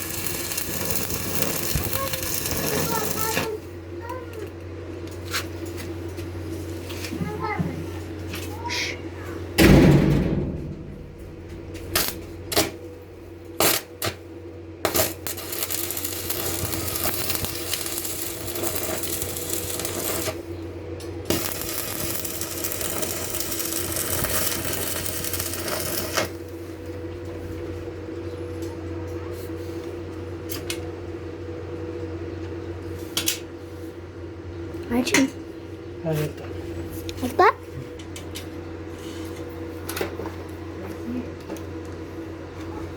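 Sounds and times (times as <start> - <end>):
arc welding crackling: 0.0 - 3.7, 9.8 - 27.1
steady electrical hum: 0.0 - 29.1
sharp metal knocks: 9.6 - 12.2.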